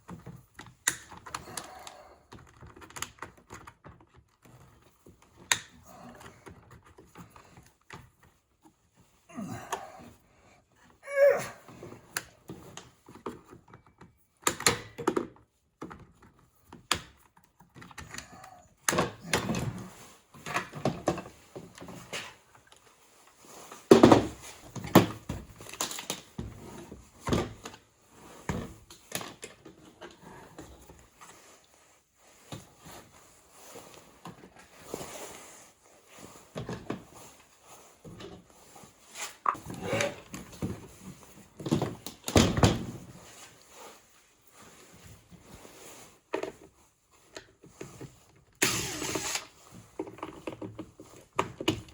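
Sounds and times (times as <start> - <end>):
plastic parts knocking and clattering: 0.0 - 9.8, 11.9 - 22.9, 23.9 - 27.8, 39.3 - 43.2, 46.3 - 51.9.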